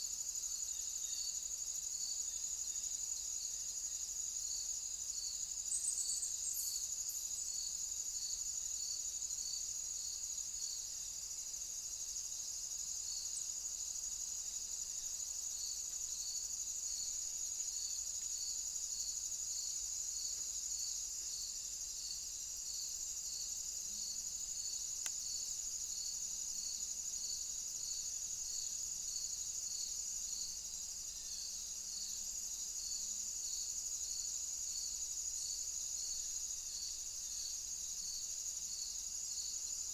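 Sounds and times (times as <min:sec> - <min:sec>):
insect chirp: 0:00.0 - 0:39.9
insects high buzz: 0:00.0 - 0:39.9.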